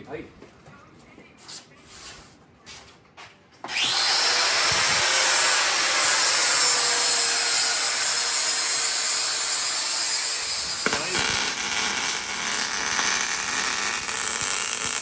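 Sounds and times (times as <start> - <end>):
angle grinder grinding metal: 3.7 - 15.0.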